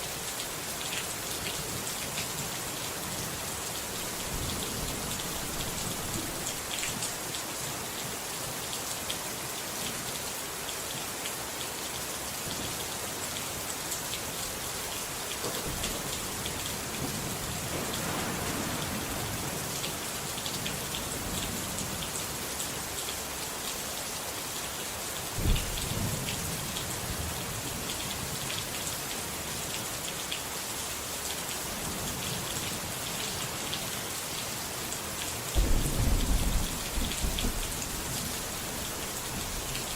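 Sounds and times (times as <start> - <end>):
steady rain patter: 0.0 - 39.9
thunder rumbles: 15.6 - 19.9, 25.4 - 26.3, 35.6 - 39.9.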